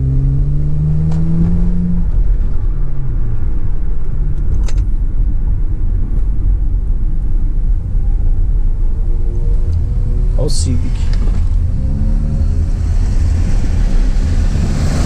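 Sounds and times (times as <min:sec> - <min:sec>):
car engine revving: 0:00.0 - 0:04.8, 0:08.2 - 0:15.0.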